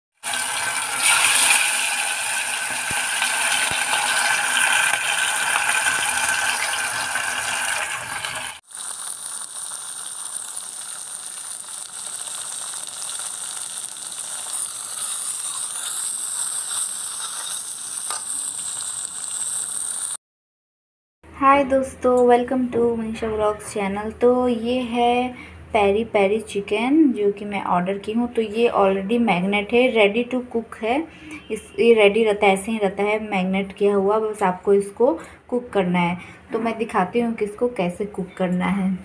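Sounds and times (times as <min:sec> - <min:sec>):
chicken frying in hot oil: 0:00.2 - 0:20.2.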